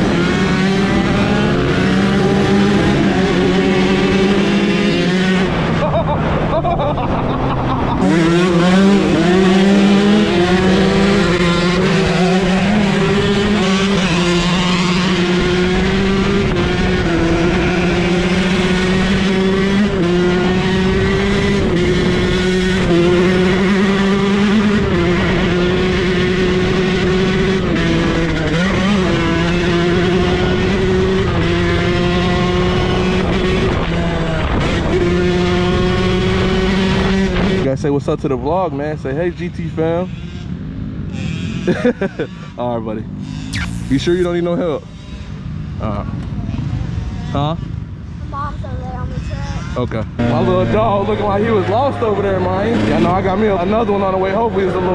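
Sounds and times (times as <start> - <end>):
dirt bike engine revving: 0.0 - 5.8, 7.9 - 33.1, 43.3 - 44.3, 50.2 - 54.9.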